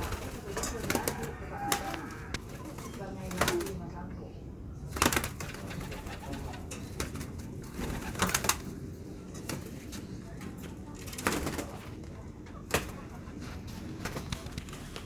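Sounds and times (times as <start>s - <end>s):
pigeons cooing: 0.0s - 3.8s, 4.7s - 10.2s.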